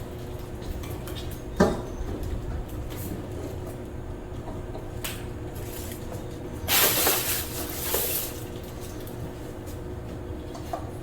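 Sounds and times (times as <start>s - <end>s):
air conditioner unit scraping: 5.5s - 10.0s.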